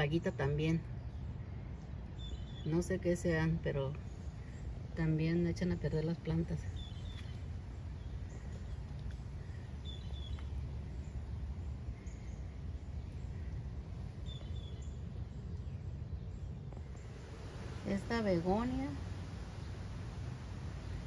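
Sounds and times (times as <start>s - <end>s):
steady low rumble: 0.0s - 21.0s
faint bird chirps: 6.5s - 18.2s.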